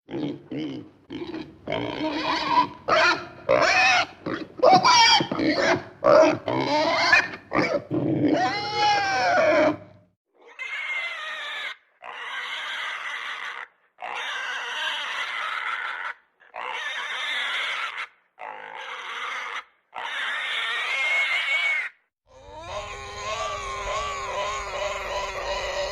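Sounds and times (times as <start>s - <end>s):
pigs squealing and grunting: 0.1s - 25.9s.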